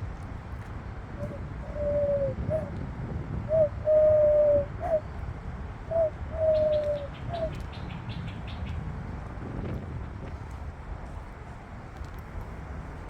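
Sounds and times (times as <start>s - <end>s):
dove cooing: 1.2s - 2.8s, 3.5s - 5.1s, 5.9s - 7.7s.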